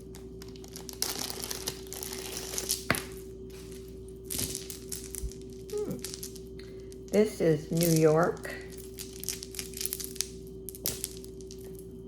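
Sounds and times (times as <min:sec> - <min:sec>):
packaging crinkling and rustling: 0:00.1 - 0:02.9.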